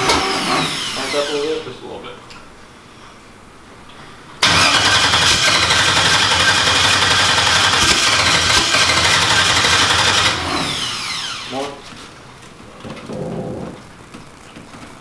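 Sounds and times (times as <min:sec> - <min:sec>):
engine winding down whine: 0:00.0 - 0:01.8, 0:04.4 - 0:11.9
race car engine running: 0:04.4 - 0:11.9.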